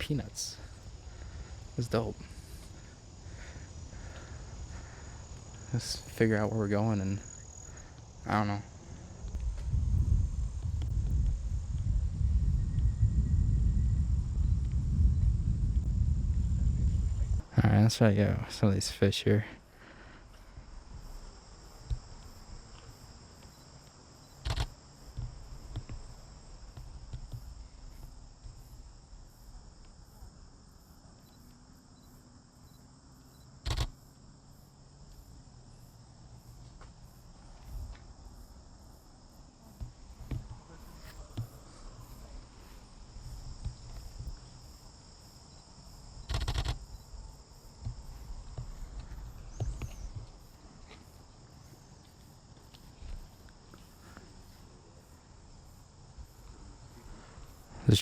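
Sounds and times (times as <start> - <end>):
wind rumble: 0.0 - 18.9
insect chorus chirring: 0.0 - 58.0
microphone handling noise: 9.2 - 17.5.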